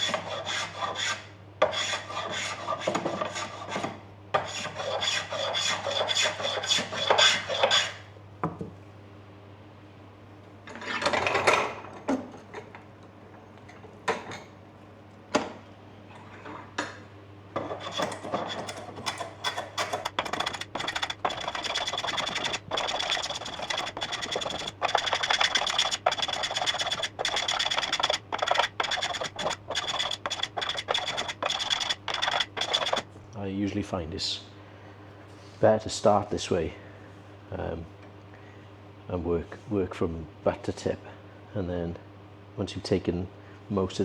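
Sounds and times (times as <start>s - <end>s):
hand plane shaving wood: 0.0s - 3.8s, 4.4s - 8.0s, 17.6s - 18.8s, 19.9s - 33.0s.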